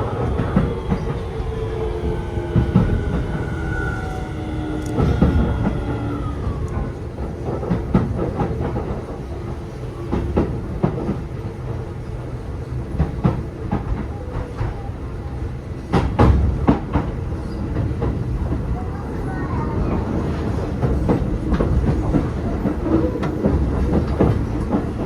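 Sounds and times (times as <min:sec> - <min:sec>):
electric train inverter whine: 0:00.0 - 0:09.6
train rumble: 0:00.0 - 0:25.0.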